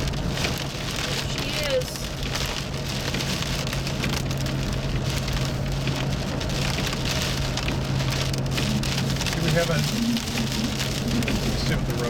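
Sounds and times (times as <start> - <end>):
heavy rain on car roof: 0.0 - 12.0.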